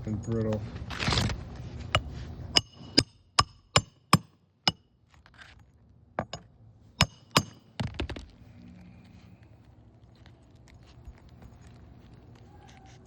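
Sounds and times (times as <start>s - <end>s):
hammer striking nails: 2.6s - 4.8s, 7.0s - 8.2s.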